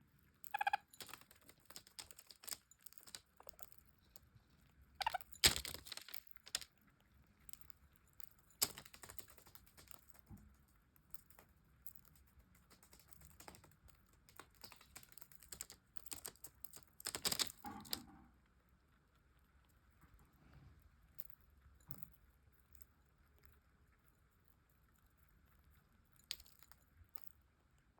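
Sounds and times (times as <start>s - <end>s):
birds cracking seed husks: 5.0s - 6.7s.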